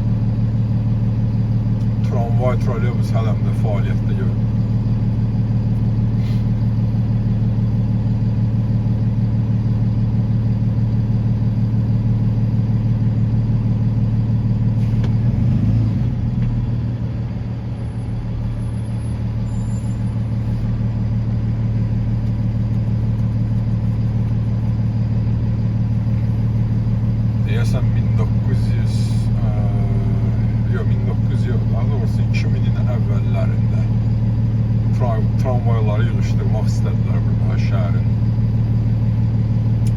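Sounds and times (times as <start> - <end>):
motor vehicle drone: 14.6 - 38.8.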